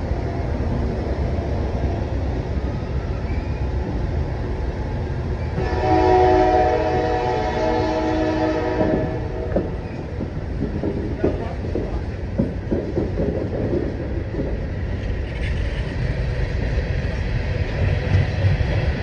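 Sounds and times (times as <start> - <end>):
train cars rumbling: 0.0 - 19.0
locomotive horn: 5.6 - 9.5.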